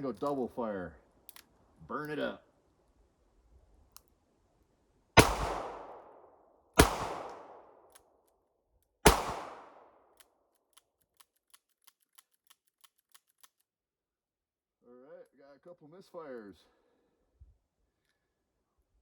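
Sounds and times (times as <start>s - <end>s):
revolver gunshots echoing: 5.2s - 7.8s, 9.0s - 9.9s.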